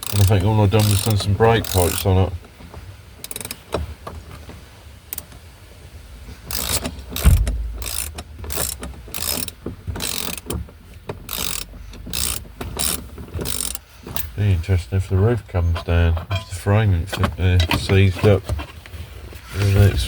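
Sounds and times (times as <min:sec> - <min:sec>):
ratchet spanner clicking: 0:00.0 - 0:02.1, 0:03.2 - 0:03.6, 0:06.5 - 0:10.6, 0:11.2 - 0:14.4
low thump: 0:07.2 - 0:08.2.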